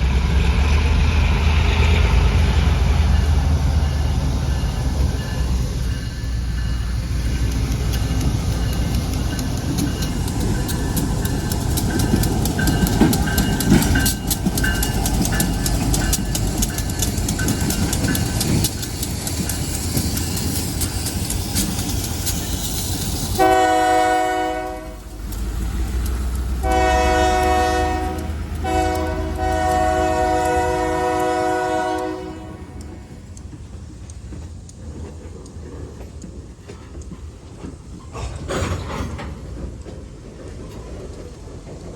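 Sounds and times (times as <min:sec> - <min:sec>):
freight train rumbling past: 0:00.0 - 0:41.9
wheels clicking over rail joints: 0:03.0 - 0:41.9
locomotive horn blasts: 0:23.4 - 0:25.1, 0:26.6 - 0:33.1.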